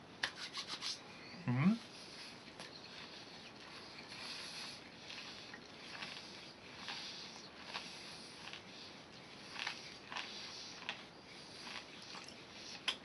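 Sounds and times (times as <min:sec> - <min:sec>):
chewing crunchy candies: 0:02.6 - 0:13.0.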